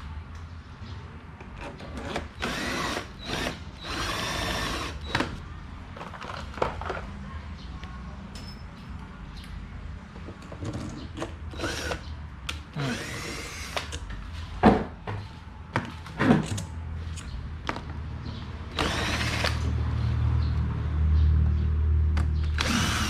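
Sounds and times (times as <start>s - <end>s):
power drill running: 2.4s - 5.2s, 11.6s - 12.0s, 12.8s - 13.9s, 18.7s - 19.6s, 22.5s - 23.0s.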